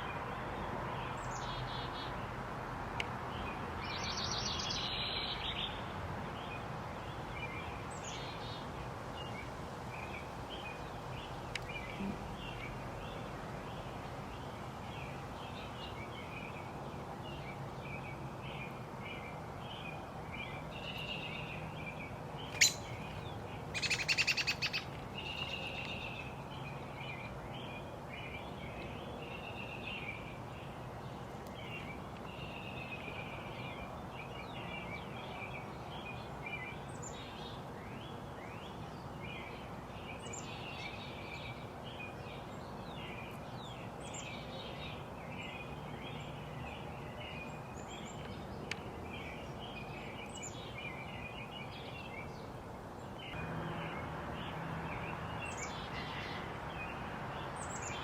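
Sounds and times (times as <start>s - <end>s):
small birds chirping: 3.0s - 58.0s.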